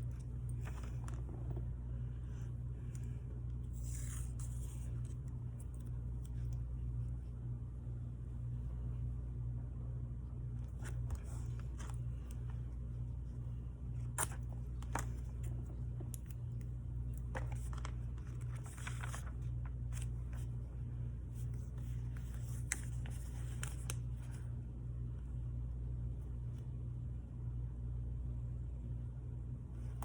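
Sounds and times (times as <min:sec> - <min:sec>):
paper crinkling and rustling: 0:00.0 - 0:01.7, 0:10.7 - 0:12.8, 0:14.0 - 0:20.7, 0:21.3 - 0:24.4
low hum: 0:00.0 - 0:30.0.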